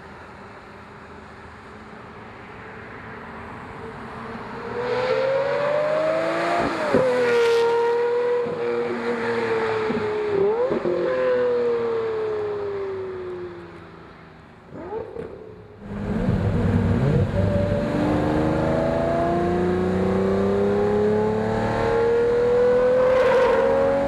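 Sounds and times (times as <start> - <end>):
sports car engine revving: 14.7 - 24.0.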